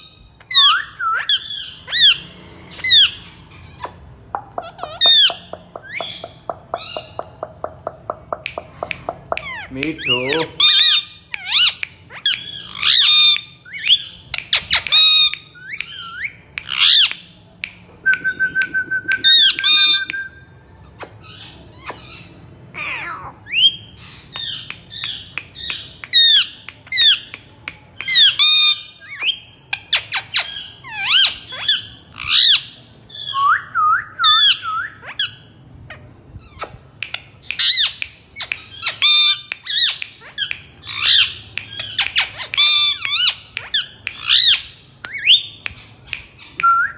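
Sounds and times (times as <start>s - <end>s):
parakeet squawking: 0.4s - 17.1s, 19.2s - 20.2s, 21.0s - 27.3s, 29.9s - 33.3s, 37.5s - 46.5s
parakeet whistling: 18.1s - 20.4s.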